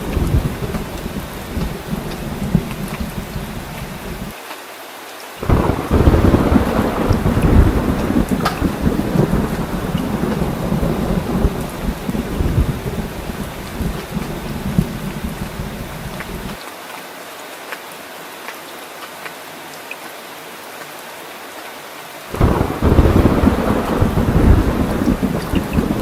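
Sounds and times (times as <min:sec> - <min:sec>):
loud thunderclap: 0:00.0 - 0:04.3, 0:05.4 - 0:16.6, 0:22.4 - 0:26.0
thunder rumbling: 0:00.0 - 0:04.3, 0:05.4 - 0:16.6, 0:22.3 - 0:26.0
water drips: 0:00.0 - 0:04.6, 0:05.4 - 0:16.8, 0:22.3 - 0:26.0
steady rain: 0:00.0 - 0:26.0.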